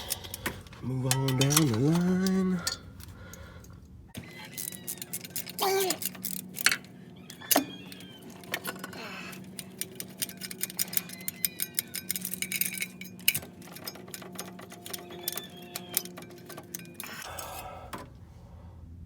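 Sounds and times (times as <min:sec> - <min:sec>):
steady low hum: 0:00.0 - 0:04.6
ratchet clicking: 0:00.0 - 0:17.5
metal hand tools clinking: 0:00.0 - 0:17.7.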